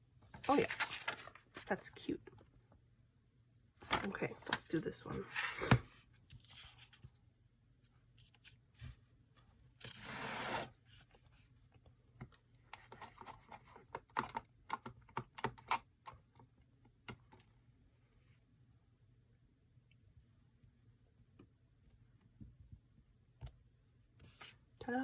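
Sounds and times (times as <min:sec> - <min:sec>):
paper rustling: 0:00.4 - 0:01.7.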